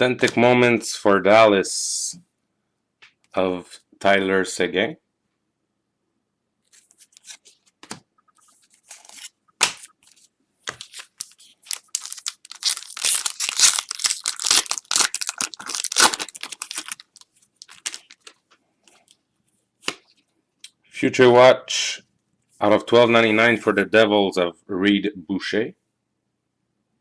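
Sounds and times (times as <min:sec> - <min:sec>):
foil wrapper tearing and crinkling: 0:10.7 - 0:18.4.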